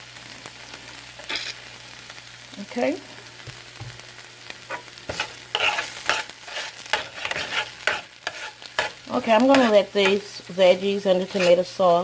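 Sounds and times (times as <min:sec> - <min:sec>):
sauce sizzling: 0:00.0 - 0:12.0
spoon scraping a pot: 0:04.7 - 0:10.3, 0:11.3 - 0:11.6.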